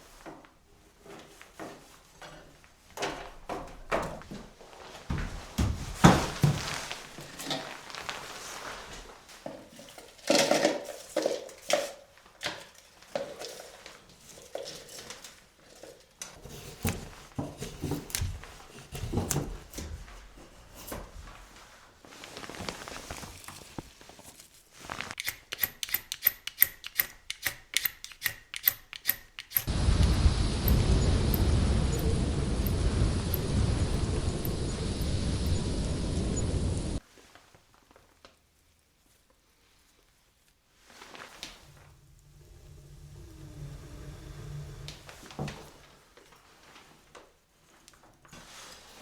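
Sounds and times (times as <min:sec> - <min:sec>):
wind noise on microphone: 0:29.7 - 0:37.0.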